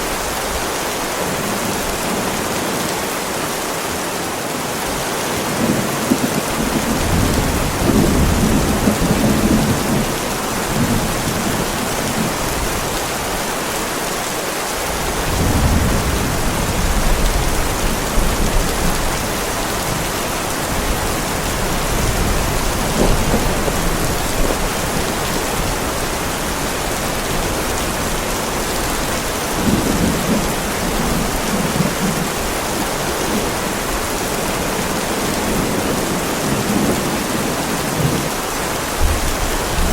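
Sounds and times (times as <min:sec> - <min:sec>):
heavy rain on a driveway: 0:00.0 - 0:39.9
thunder rolling: 0:05.6 - 0:12.8, 0:20.7 - 0:26.0, 0:29.0 - 0:32.5.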